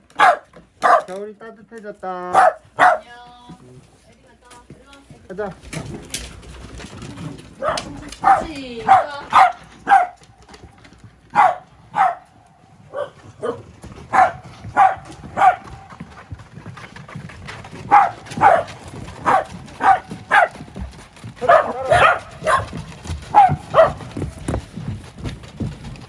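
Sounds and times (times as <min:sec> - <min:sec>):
dogs barking: 0:00.0 - 0:01.2, 0:02.3 - 0:03.2, 0:07.4 - 0:10.4, 0:11.2 - 0:16.2, 0:17.6 - 0:24.4.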